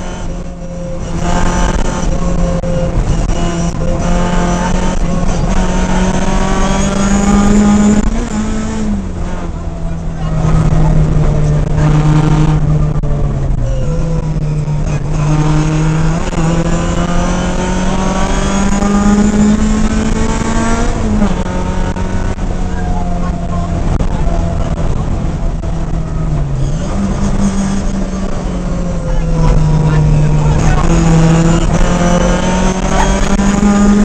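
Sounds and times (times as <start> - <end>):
rally car engine from inside cabin: 0.0 - 34.0.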